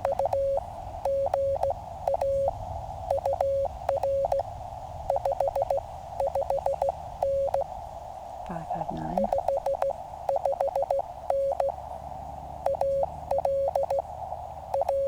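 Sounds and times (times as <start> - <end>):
morse code tone: 0.0 - 2.5, 3.1 - 4.4, 5.1 - 7.7, 8.5 - 11.8, 12.6 - 14.0, 14.7 - 15.0
receiver hiss: 0.0 - 15.0.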